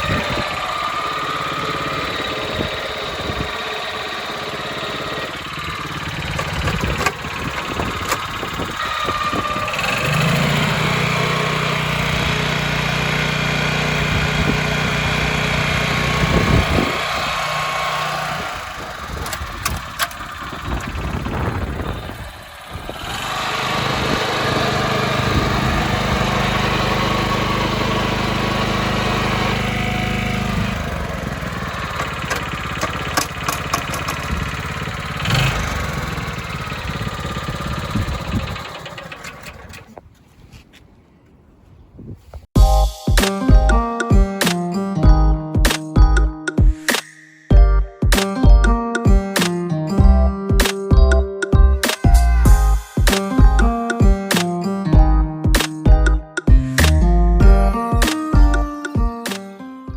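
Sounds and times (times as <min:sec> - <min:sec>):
small gasoline engine running: 0:00.0 - 0:40.0.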